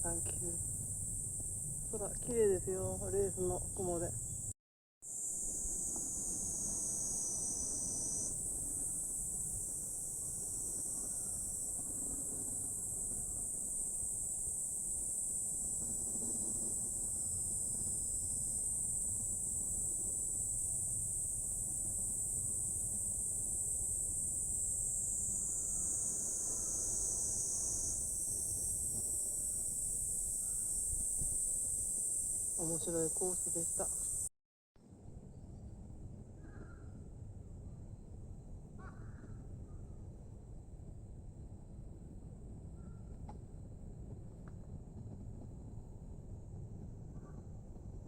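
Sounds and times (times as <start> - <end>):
high-pitched insect chorus: 0.0 - 34.3.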